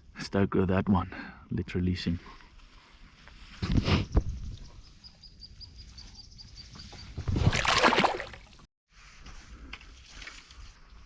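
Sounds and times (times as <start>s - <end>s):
water splash: 7.4s - 8.6s.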